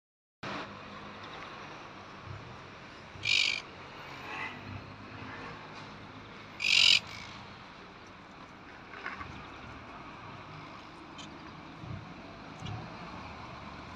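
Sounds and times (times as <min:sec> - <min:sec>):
steady background noise: 0:00.5 - 0:13.9
faint bird chirps: 0:03.2 - 0:03.6, 0:06.6 - 0:07.4
bird harsh calls: 0:03.2 - 0:03.7, 0:06.5 - 0:07.5.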